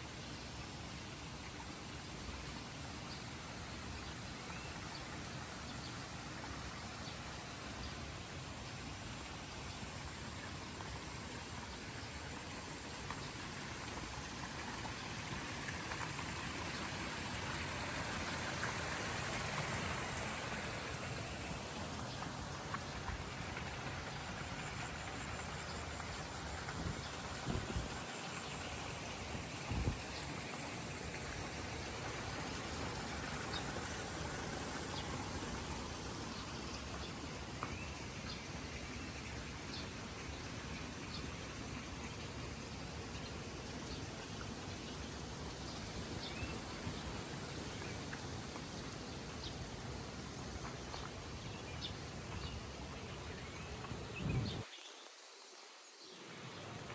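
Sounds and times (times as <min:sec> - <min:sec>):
water rushing and pattering: 0:00.0 - 0:54.7, 0:56.2 - 0:56.9.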